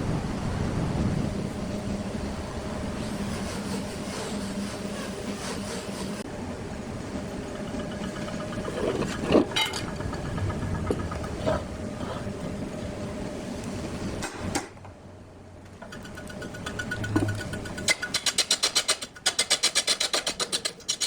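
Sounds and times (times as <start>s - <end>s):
wood lathe humming: 6.8s - 13.0s, 15.8s - 17.9s
knocks and clicks: 7.6s - 11.9s, 15.7s - 20.5s.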